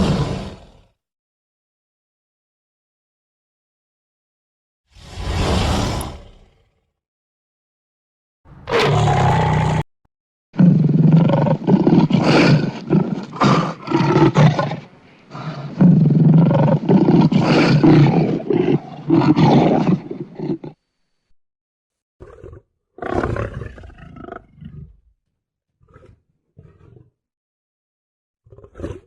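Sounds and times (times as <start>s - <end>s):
lion roaring and growling: 0.0s - 0.9s, 5.0s - 6.8s, 8.6s - 9.9s, 10.6s - 20.8s, 22.2s - 25.0s.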